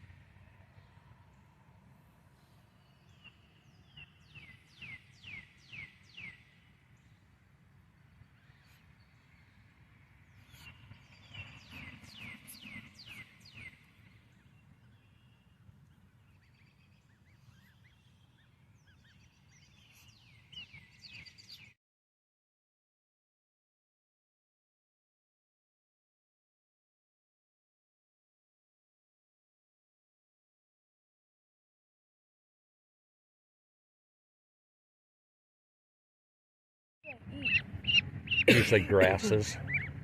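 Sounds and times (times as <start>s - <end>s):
faint low rumble: 0.0s - 5.1s
songbird singing: 0.0s - 21.8s, 37.1s - 40.0s.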